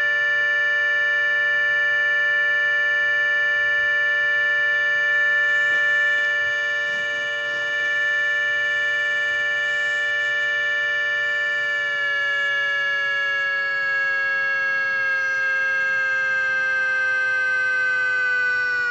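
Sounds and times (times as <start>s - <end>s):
warning siren steady tone: 0.0s - 18.9s.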